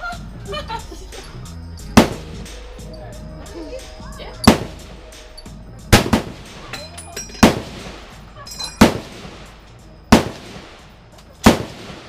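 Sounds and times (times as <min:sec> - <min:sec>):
rifle shots echoing: 0:02.0 - 0:02.5, 0:04.4 - 0:05.0, 0:05.9 - 0:06.7, 0:07.4 - 0:08.2, 0:08.8 - 0:12.0.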